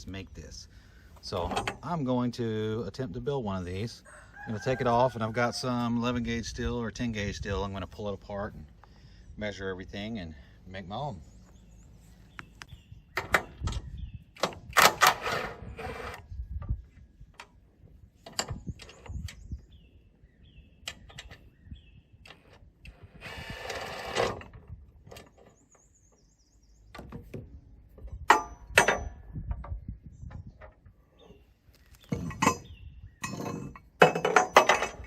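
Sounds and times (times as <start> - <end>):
tools clanking on steel: 1.3 - 2.0, 28.0 - 29.8, 32.0 - 35.0.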